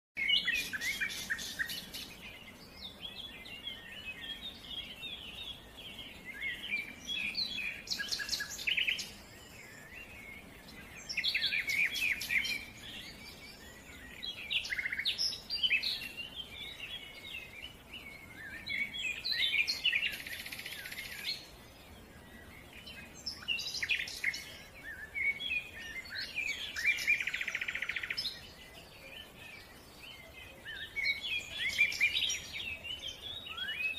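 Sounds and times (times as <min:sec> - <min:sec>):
small birds chirping: 0:00.2 - 0:33.9.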